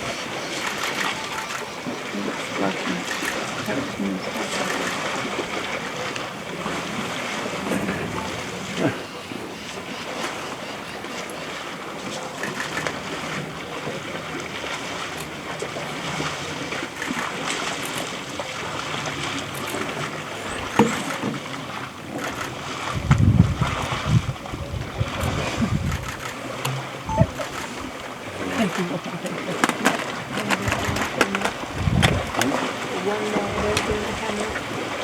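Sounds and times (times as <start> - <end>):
elephants splashing in water: 0.0 - 35.0
wind on microphone: 22.6 - 28.1, 29.7 - 35.0.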